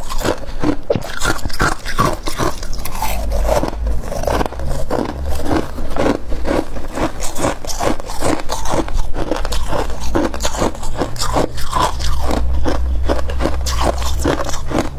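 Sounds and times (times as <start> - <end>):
frost being crunched and chewed: 0.0 - 14.9
steady low hum: 1.9 - 14.9.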